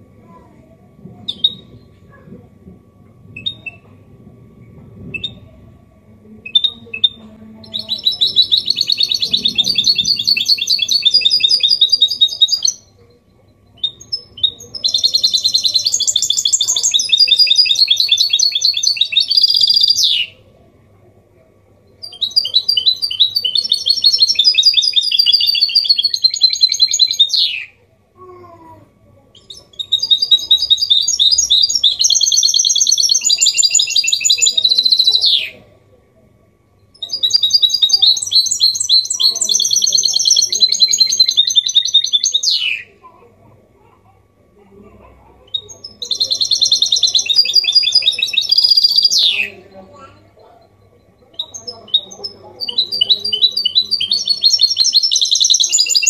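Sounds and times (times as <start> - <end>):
finch singing twittering song: 6.5 - 13.0, 13.6 - 20.4, 22.0 - 27.7, 29.4 - 35.6, 36.9 - 42.9, 45.5 - 49.6, 51.3 - 56.0.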